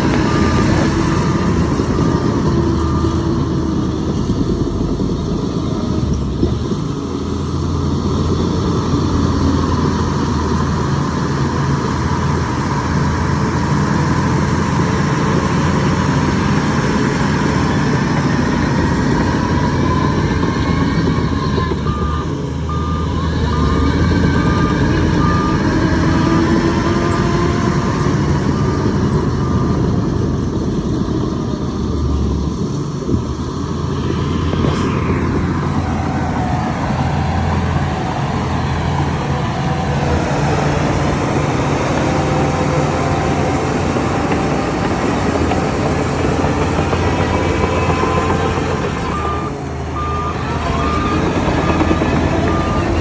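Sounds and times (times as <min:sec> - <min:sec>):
heavy diesel machinery running: 0:00.0 - 0:53.0
reversing alarm beeping: 0:19.2 - 0:27.2, 0:46.3 - 0:53.0.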